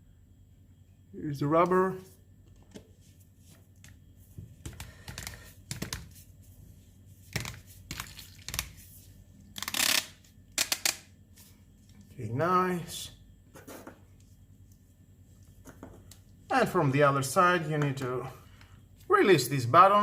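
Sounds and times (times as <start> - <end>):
plastic parts clicking and knocking: 9.6 - 11.1.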